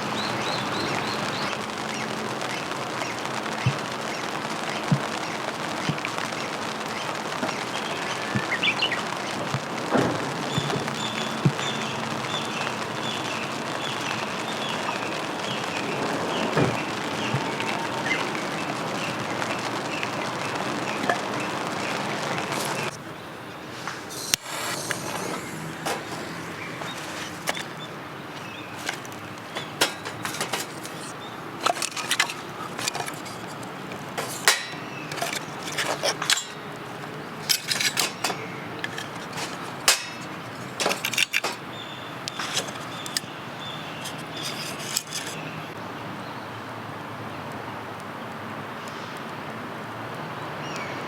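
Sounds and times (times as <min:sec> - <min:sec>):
rain hissing: 0:00.0 - 0:45.8
camping gear clinking: 0:22.5 - 0:45.7.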